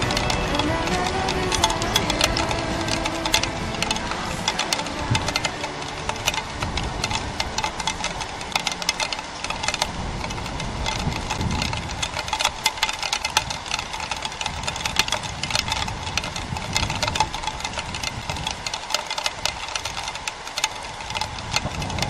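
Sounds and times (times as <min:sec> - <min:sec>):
heavy rain drops pattering: 0:00.0 - 0:22.0.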